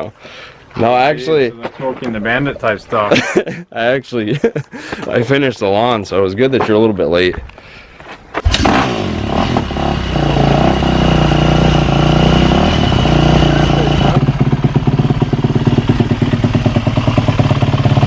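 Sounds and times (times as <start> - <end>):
motorcycle engine running: 8.4 - 18.0.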